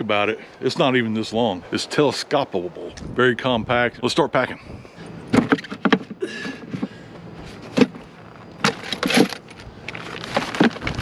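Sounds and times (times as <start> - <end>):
gear being handled and packed: 5.3 - 11.0.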